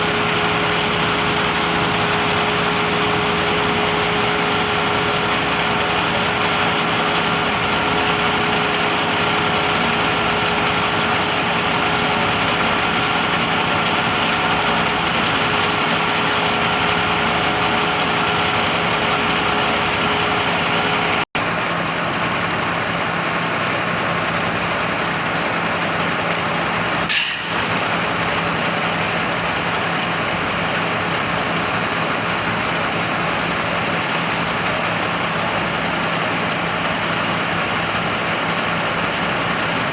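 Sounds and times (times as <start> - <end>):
concrete pump engine droning: 0.0 - 39.9
short sharp hiss: 27.1 - 28.0.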